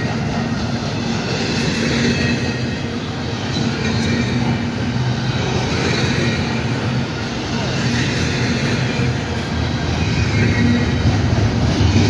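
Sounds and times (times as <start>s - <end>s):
steel wheels on rails: 0.0s - 12.0s.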